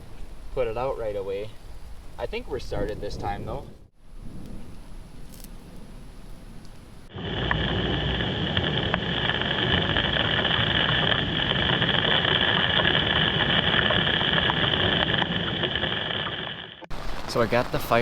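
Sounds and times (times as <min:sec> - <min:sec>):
heavy rain pouring: 0:07.1 - 0:18.0.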